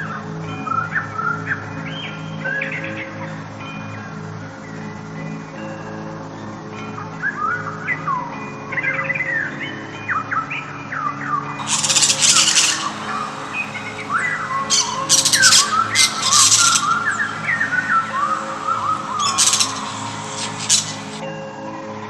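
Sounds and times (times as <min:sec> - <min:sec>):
birds chirping: 0:11.6 - 0:21.2
high buzzy bird trilling: 0:11.6 - 0:21.2.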